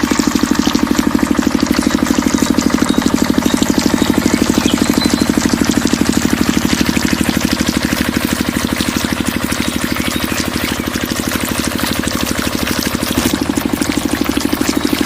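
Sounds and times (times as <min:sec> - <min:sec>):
small engine idling: 0:00.0 - 0:15.0.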